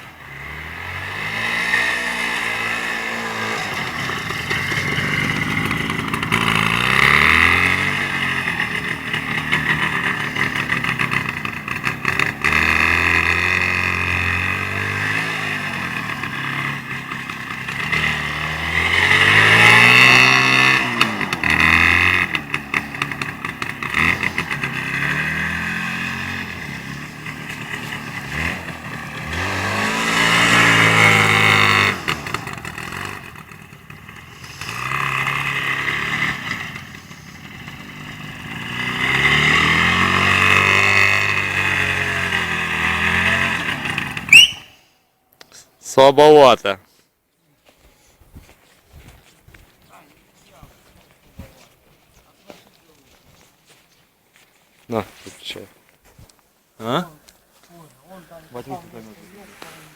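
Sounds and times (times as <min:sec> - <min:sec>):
motorcycle engine revving: 0:00.0 - 0:45.2, 0:58.1 - 0:59.9.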